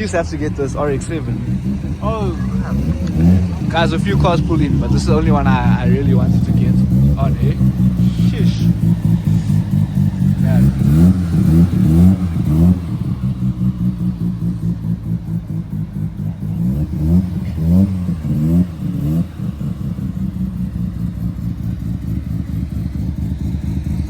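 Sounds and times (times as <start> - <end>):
engine idling: 0.0 - 24.0
rotary engine revving: 0.0 - 24.0.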